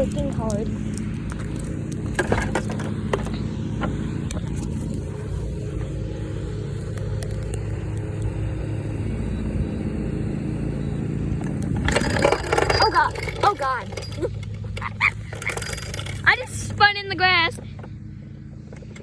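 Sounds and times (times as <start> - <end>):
toy car motors running: 11.6 - 17.6.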